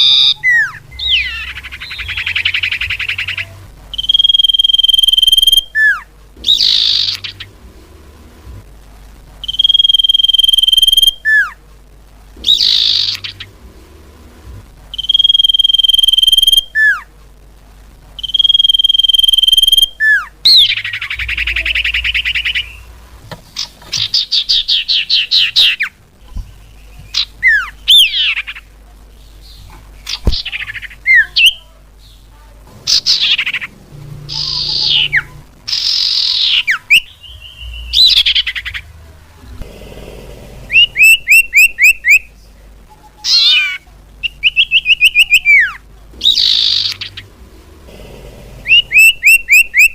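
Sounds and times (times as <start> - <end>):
bird calling: 0.0 - 7.6, 12.4 - 13.6, 32.8 - 39.0, 40.6 - 42.3, 43.2 - 49.9.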